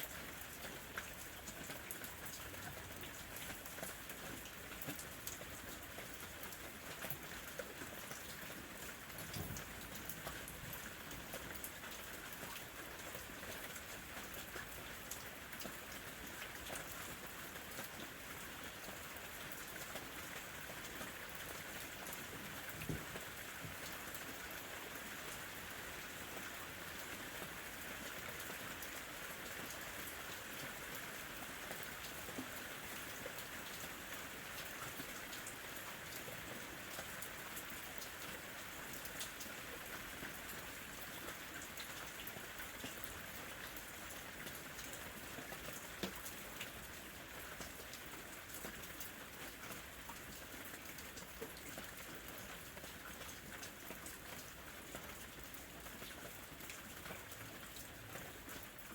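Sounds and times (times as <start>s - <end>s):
light rain falling: 0.0s - 58.9s
raindrop ticks: 0.6s - 8.4s.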